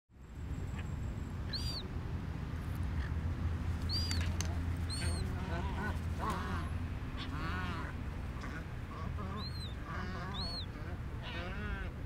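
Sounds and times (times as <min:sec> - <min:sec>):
steady low rumble: 0:00.2 - 0:12.0
bird calling: 0:01.5 - 0:01.9, 0:03.8 - 0:12.0.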